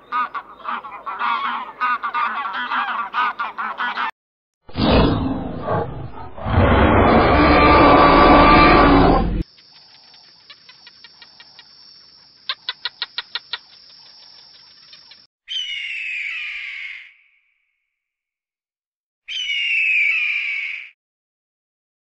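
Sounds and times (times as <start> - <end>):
dinosaur roar: 4.8 - 9.4
rapid chirping clicks: 9.4 - 15.3
bird screech falling in pitch: 15.5 - 17.1, 19.3 - 21.0.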